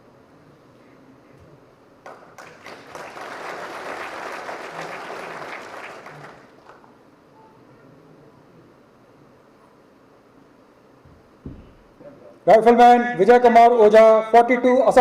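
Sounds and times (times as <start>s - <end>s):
audience applause: 2.0s - 6.9s.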